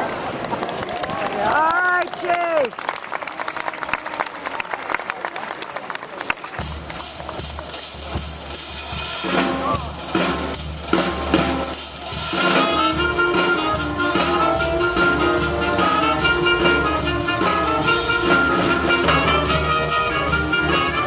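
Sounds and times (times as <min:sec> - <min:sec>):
drum kit playing: 0:06.6 - 0:21.0
horns playing sustained notes: 0:11.3 - 0:21.0.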